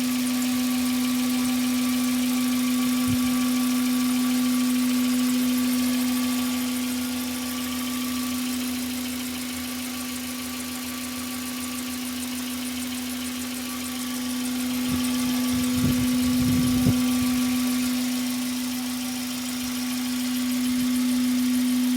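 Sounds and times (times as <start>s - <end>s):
car engine idling: 5.6s - 21.7s
steady hum: 13.9s - 21.2s.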